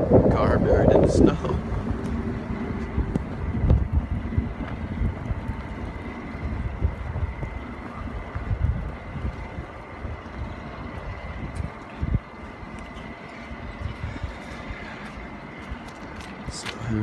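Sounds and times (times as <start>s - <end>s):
low rumble: 0.0s - 15.1s
wind buffeting microphone: 0.0s - 17.0s.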